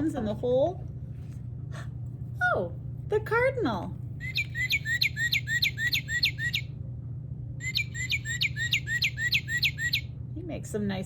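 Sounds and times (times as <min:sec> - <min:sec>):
recorded bird song whistles: 0:04.2 - 0:06.7, 0:07.6 - 0:10.1.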